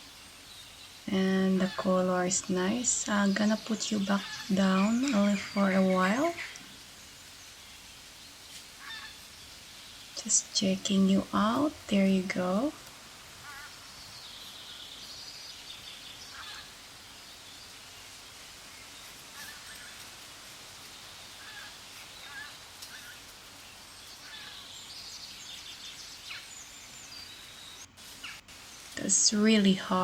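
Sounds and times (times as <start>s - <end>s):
faint bird chirps: 20.8s - 29.8s.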